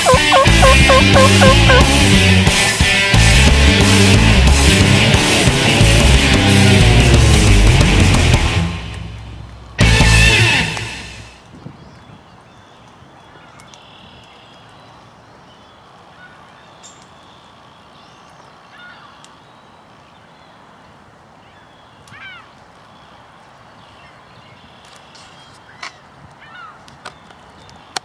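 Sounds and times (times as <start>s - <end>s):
descending bird calls: 0.0s - 2.2s
faint field ambience: 0.0s - 3.2s, 7.0s - 28.0s.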